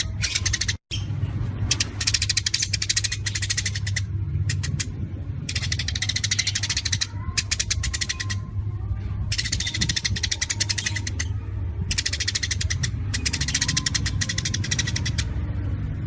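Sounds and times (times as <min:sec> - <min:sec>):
steady low hum: 0:00.0 - 0:16.0
songbird clicking song: 0:01.7 - 0:04.9, 0:05.5 - 0:08.4, 0:09.3 - 0:15.4.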